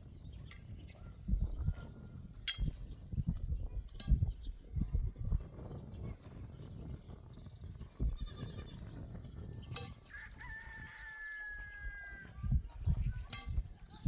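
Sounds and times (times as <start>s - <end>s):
rooster crowing: 10.0s - 12.4s.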